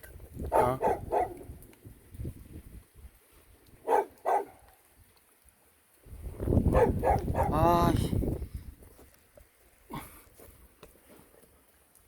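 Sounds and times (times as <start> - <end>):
dog barking: 0.5 - 1.5, 3.8 - 4.7, 6.7 - 7.6.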